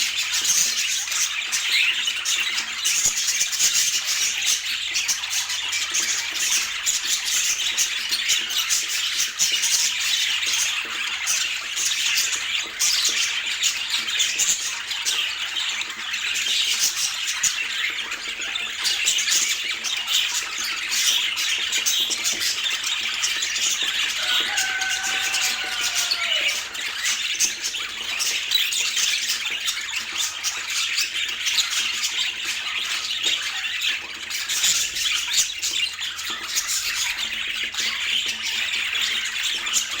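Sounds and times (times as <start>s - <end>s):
budgerigars chattering: 0.2s - 40.0s
low drawn-out bird call: 24.2s - 27.0s.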